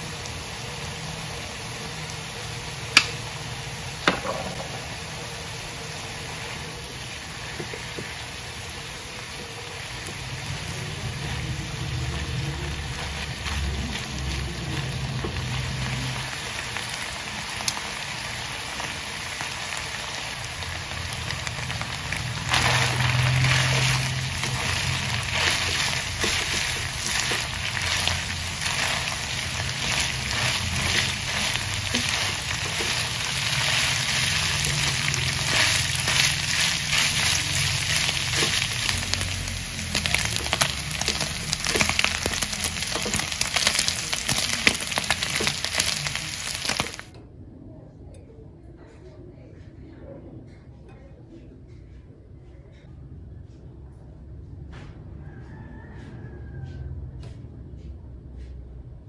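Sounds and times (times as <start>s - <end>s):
chicken sizzling in a frying pan: 0.0s - 47.2s
spatula stirring in pan: 6.2s - 47.1s.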